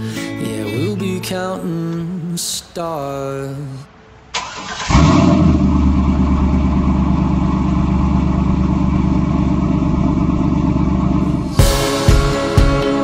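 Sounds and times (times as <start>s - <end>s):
car engine starting and idling: 4.2s - 13.0s.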